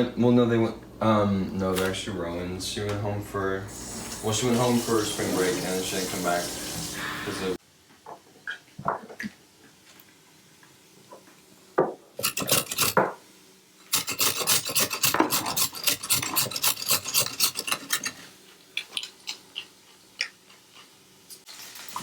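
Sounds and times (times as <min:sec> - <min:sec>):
rasping scrapes on a surface: 0:14.0 - 0:17.9.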